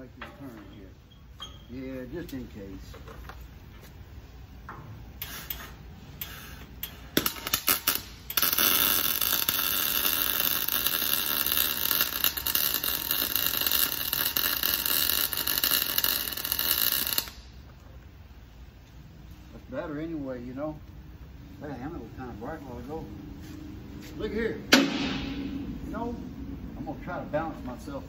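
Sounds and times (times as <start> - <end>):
welder arc crackling: 5.2 - 17.6.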